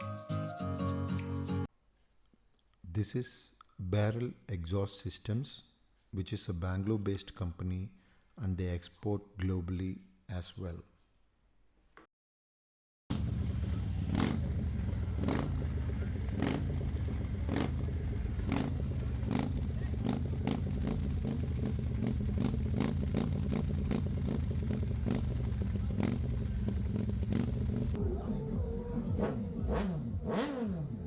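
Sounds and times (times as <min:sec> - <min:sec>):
motorcycle engine idling: 0:13.1 - 0:31.0.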